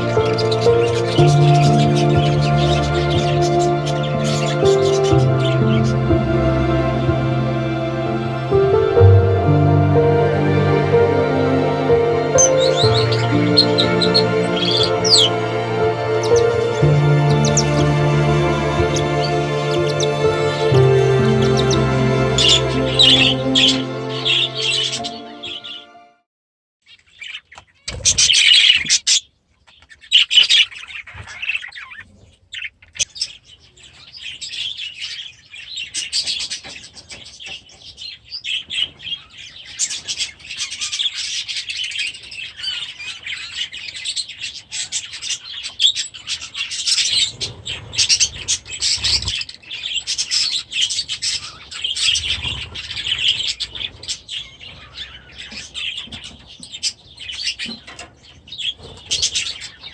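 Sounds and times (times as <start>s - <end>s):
budgerigars chattering and warbling: 0.0s - 6.1s, 12.1s - 25.8s, 37.8s - 59.9s.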